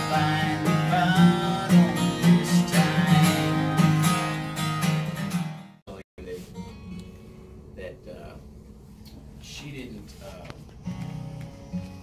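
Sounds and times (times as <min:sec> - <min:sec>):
acoustic guitar strumming: 0:00.0 - 0:05.8.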